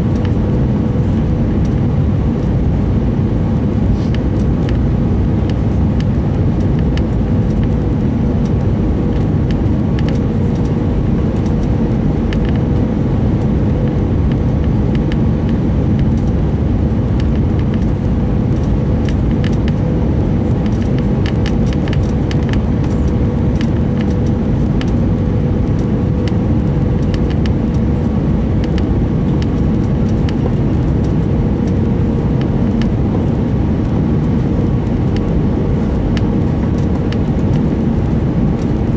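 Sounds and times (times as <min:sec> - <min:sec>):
constant cabin hum: 0:00.0 - 0:38.9
jet engine rumble and airflow: 0:00.0 - 0:38.9.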